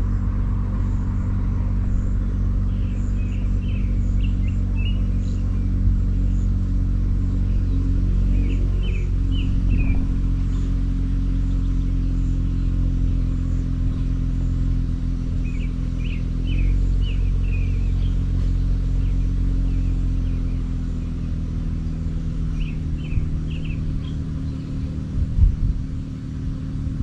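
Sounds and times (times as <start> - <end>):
birds chirping: 0.0 - 27.0
vehicle engine running slowly: 0.0 - 27.0.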